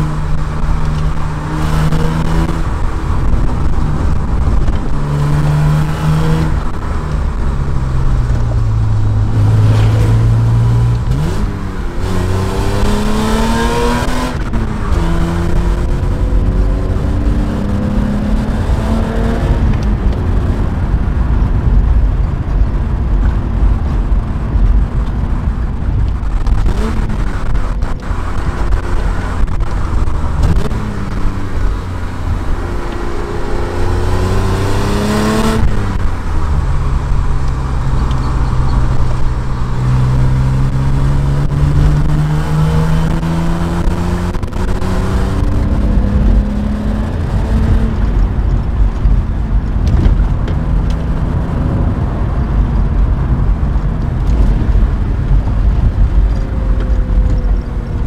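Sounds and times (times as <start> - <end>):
car engine revving through gears: 0.0 - 21.6, 23.4 - 58.0.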